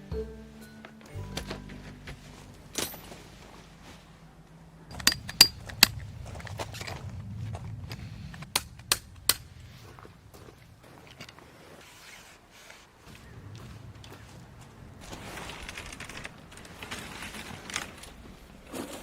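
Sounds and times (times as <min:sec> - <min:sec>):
camping gear rustling: 0:01.0 - 0:08.5, 0:09.1 - 0:19.0
sharp clicks and knocks: 0:04.9 - 0:07.1.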